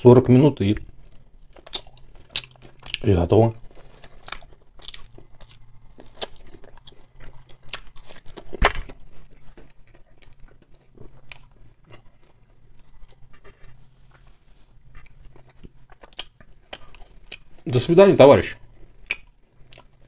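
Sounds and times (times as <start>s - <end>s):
chewing with wet smacking: 0.8s - 14.2s, 14.8s - 17.7s, 18.6s - 20.0s
crisp crunches: 1.4s - 11.6s.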